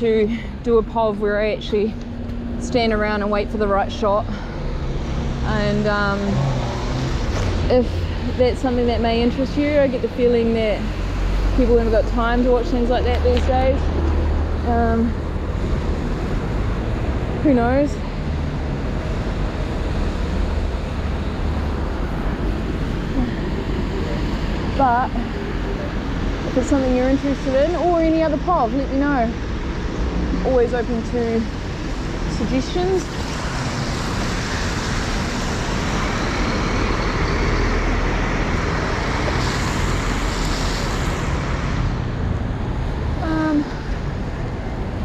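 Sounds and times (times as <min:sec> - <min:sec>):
heavy rain on city street: 0:12.6 - 0:45.0.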